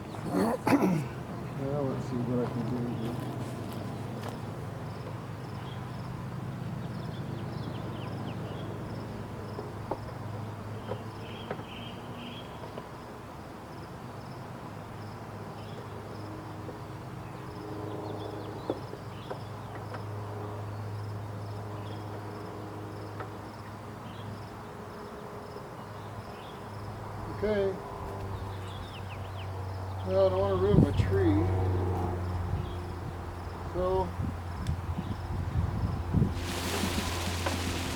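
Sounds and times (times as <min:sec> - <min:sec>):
bee swarm buzzing: 0:36.3 - 0:37.9
single bees flying close: 0:36.4 - 0:37.9.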